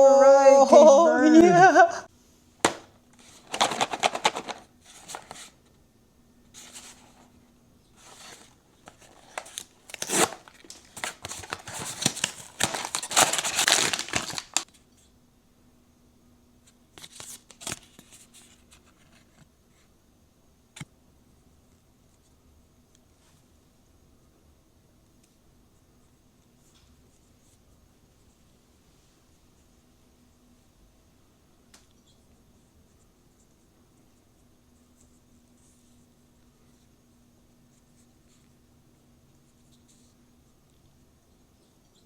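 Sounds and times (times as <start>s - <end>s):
packaging tearing and crinkling: 2.7s - 5.4s, 8.1s - 14.7s.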